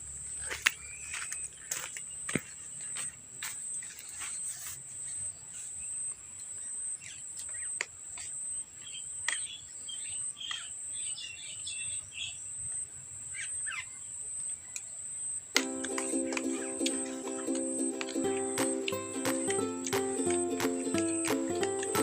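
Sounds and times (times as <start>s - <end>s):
birds chirping: 0.3s - 14.0s, 15.2s - 22.0s
music: 15.6s - 22.0s.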